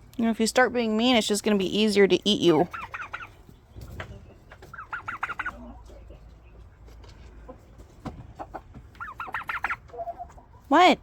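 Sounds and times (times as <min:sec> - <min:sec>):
turkey calling: 0:02.4 - 0:06.6, 0:07.4 - 0:10.7.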